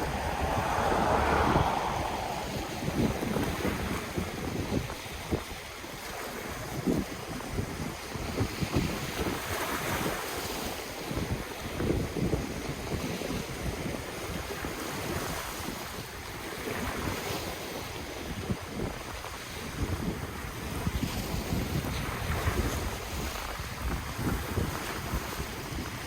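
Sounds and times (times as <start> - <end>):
ocean waves washing on shore: 0.0 - 13.8
wind buffeting microphone: 0.0 - 17.0.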